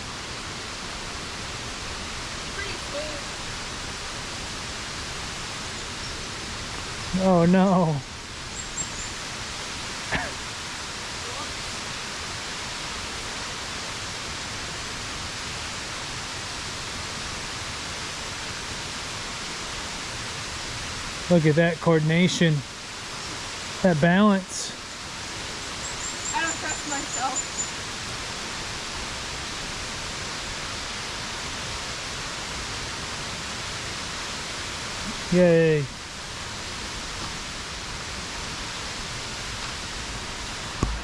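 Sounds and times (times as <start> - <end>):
waterfall pouring onto rock: 18.0 - 41.0.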